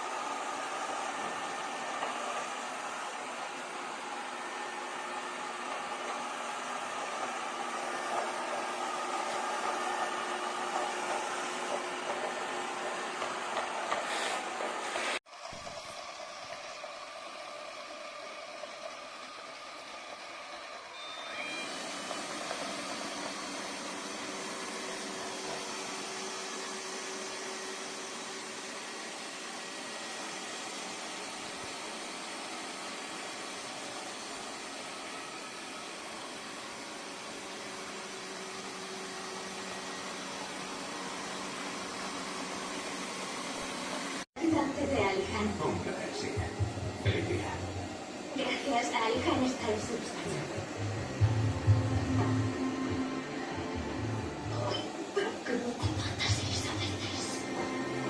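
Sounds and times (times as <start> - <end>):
machine running with faint hum: 44.5 - 58.0.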